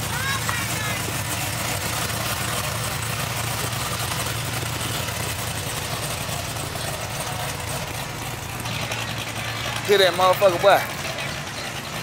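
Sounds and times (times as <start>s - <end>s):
car engine running at low revs: 0.0s - 12.0s.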